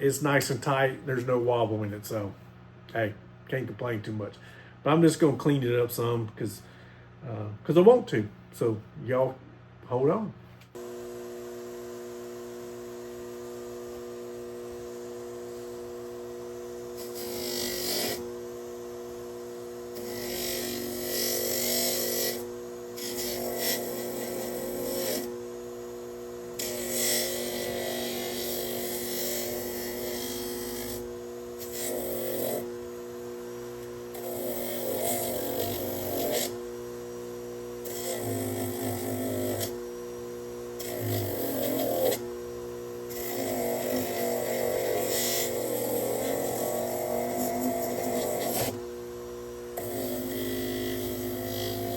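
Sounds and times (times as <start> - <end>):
electric power tool running: 10.8 - 51.9
metal grinding abrasively: 14.9 - 51.9.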